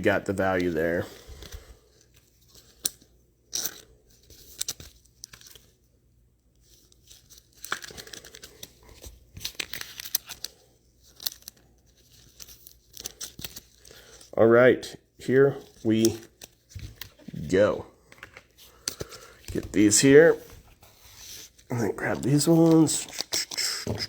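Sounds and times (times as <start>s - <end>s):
plastic sleeves crinkling: 6.6s - 14.4s, 15.4s - 24.0s.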